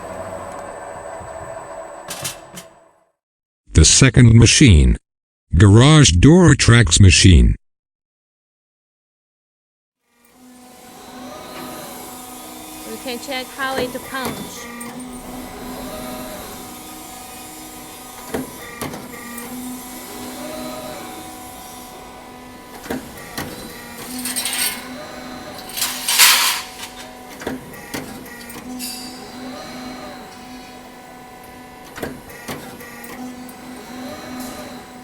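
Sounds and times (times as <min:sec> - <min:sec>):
machine hum: 0:00.0 - 0:03.0, 0:23.7 - 0:27.3.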